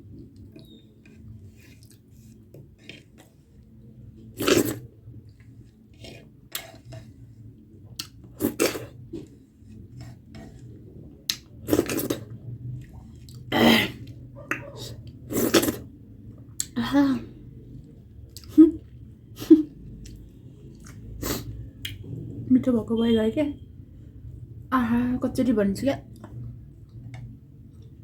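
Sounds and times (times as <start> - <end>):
chewing: 7.8 - 9.4, 10.0 - 15.8.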